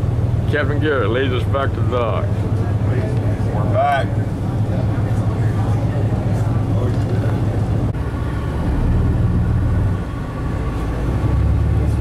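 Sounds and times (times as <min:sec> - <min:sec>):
boat engines droning: 0:00.0 - 0:12.0.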